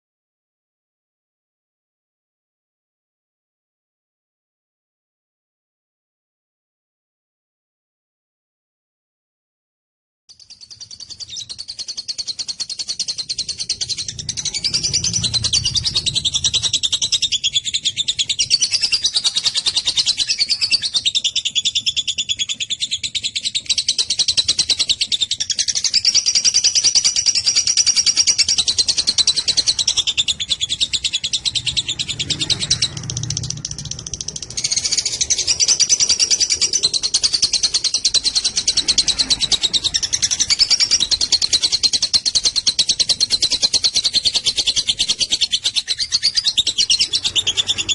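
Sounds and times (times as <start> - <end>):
lovebird chattering: 10.6 - 47.9.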